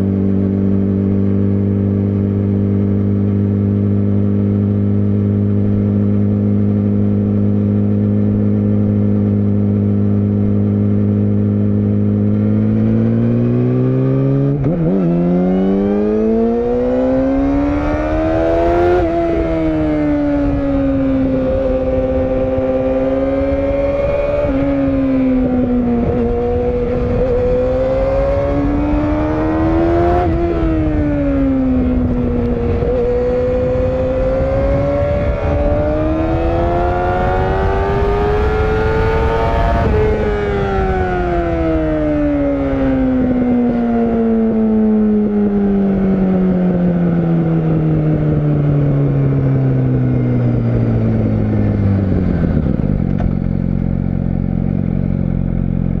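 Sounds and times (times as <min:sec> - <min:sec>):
motorcycle engine accelerating: 0:00.0 - 0:56.0
wind rush: 0:14.6 - 0:46.5, 0:47.8 - 0:54.0.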